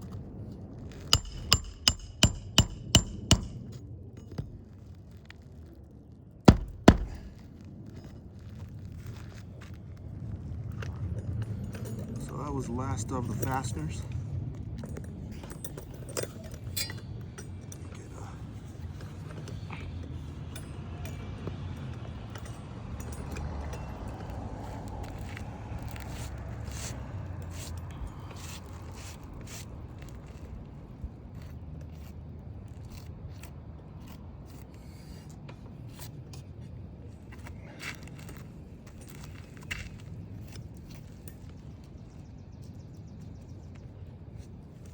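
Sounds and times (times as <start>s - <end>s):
steady low rumble: 0.0s - 5.0s, 5.8s - 16.1s
roofing tools clicking and clinking: 1.0s - 4.6s, 14.8s - 18.0s
hands scraping roof shingles: 6.5s - 7.5s.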